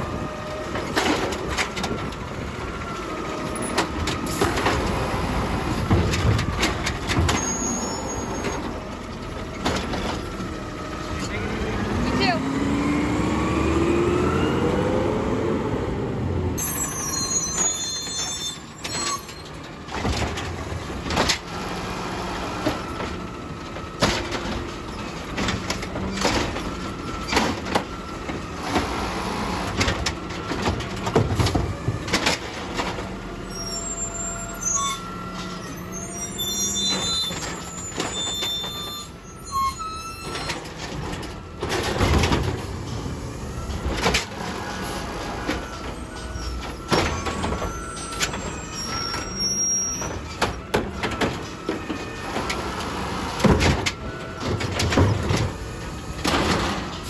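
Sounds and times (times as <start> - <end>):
garbage truck engine revving: 0.0 - 57.0
clanks and knocks: 0.7 - 7.8, 18.9 - 21.6, 22.4 - 29.0, 29.6 - 33.3, 40.2 - 43.0, 43.7 - 49.4, 50.0 - 57.0
short high squeals: 7.3 - 8.8, 16.6 - 19.4, 33.4 - 40.6, 45.6 - 50.2.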